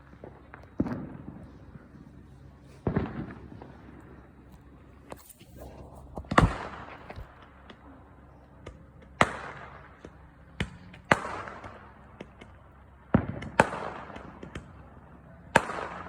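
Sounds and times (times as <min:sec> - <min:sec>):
distant fireworks booms: 0:00.0 - 0:16.0
small pops and crackles: 0:02.8 - 0:14.8.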